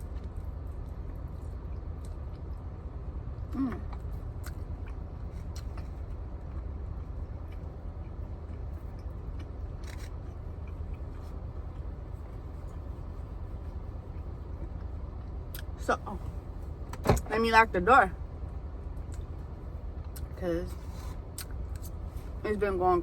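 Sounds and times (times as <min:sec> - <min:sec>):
soft clicks of chewing and utensils: 0:00.0 - 0:02.6, 0:03.9 - 0:11.9, 0:19.0 - 0:19.3
low hum in car cabin: 0:00.0 - 0:23.0.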